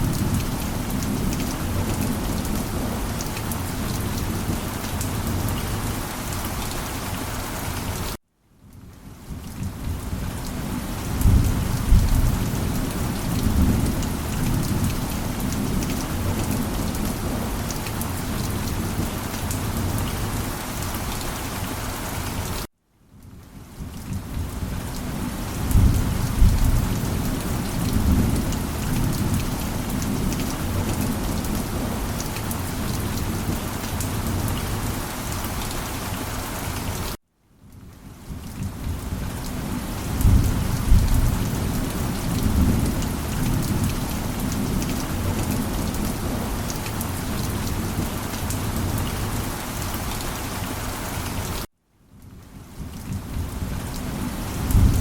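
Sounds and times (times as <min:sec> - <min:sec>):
heavy rain: 0:00.0 - 0:55.0
thunder rumbling: 0:25.5 - 0:32.2, 0:40.0 - 0:49.5.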